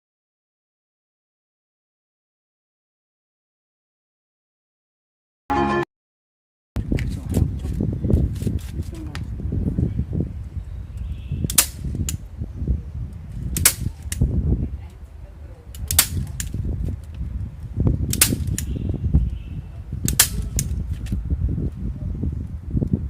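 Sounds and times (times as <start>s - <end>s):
sharp snaps: 11.5s - 12.2s, 13.5s - 14.3s, 15.7s - 16.6s, 18.1s - 18.7s, 20.1s - 20.8s.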